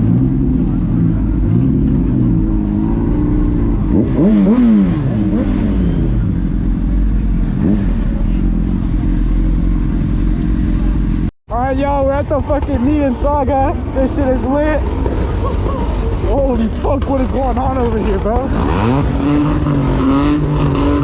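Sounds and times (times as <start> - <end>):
car engine revving: 0.0 - 11.3, 14.6 - 21.0
low exhaust rumble: 0.0 - 21.0.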